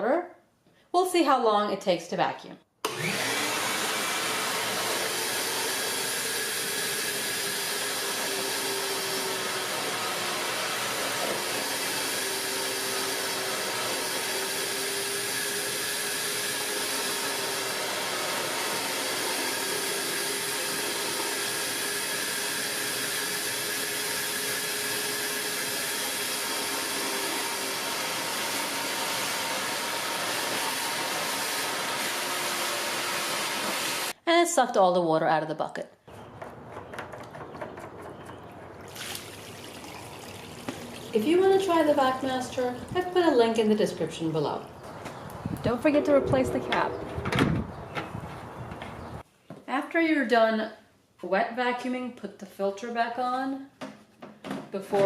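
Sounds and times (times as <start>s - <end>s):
wet dry vacuum sucking water: 2.9s - 34.1s, 38.9s - 43.5s.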